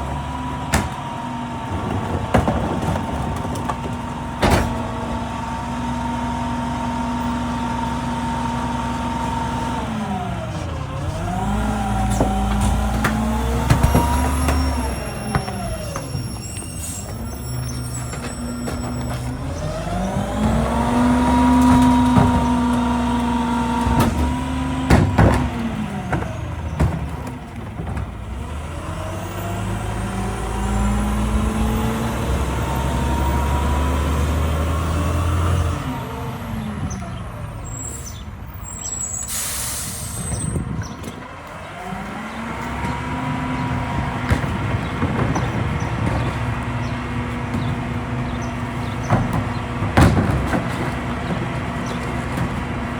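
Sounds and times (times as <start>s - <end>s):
garbage truck diesel engine revving: 0.0s - 52.9s
air brake hiss: 39.0s - 40.3s.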